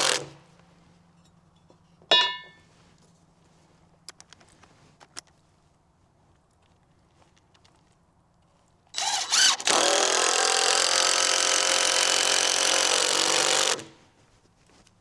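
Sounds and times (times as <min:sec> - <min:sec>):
power drill driving a screw: 0:00.0 - 0:00.4, 0:09.0 - 0:14.0.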